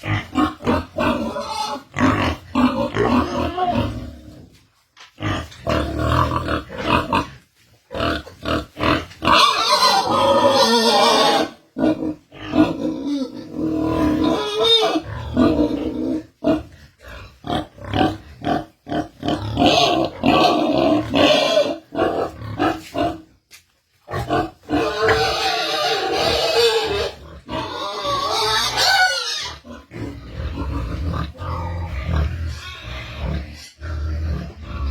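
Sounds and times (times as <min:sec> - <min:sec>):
pigs grunting and squealing: 0:00.0 - 0:23.4, 0:24.0 - 0:34.9.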